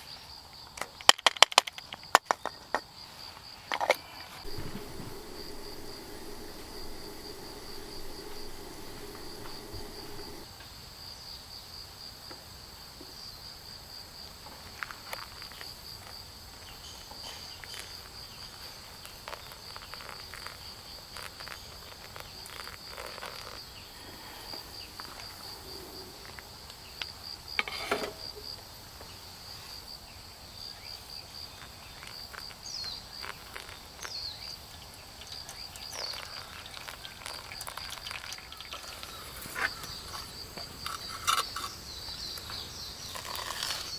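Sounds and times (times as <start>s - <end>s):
insects trilling: 1.8s - 10.5s, 15.1s - 43.9s
faint clicks: 4.5s - 10.5s.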